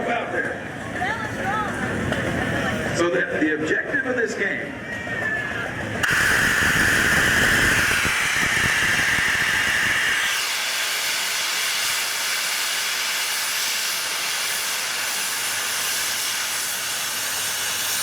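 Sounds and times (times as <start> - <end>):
steam valve hissing: 6.0 - 18.0.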